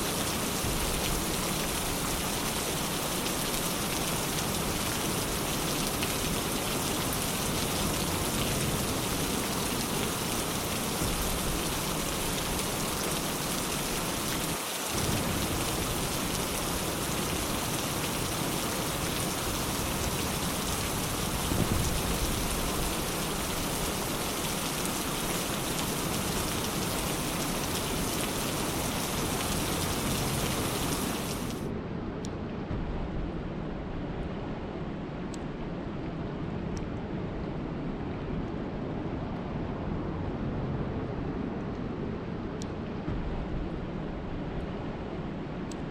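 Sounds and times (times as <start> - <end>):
steady dense rain hiss: 0.0 - 31.7, 32.8 - 45.9
low rumble: 43.0 - 45.5.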